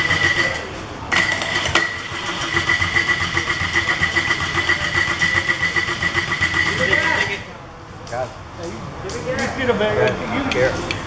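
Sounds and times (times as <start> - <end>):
diesel engine cranking: 0.0 - 7.6.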